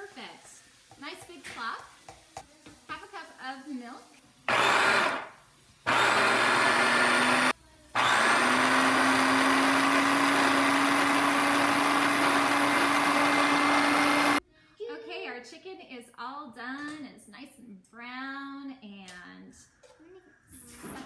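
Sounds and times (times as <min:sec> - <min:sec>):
electric blender running: 0:04.5 - 0:05.3, 0:05.9 - 0:14.4.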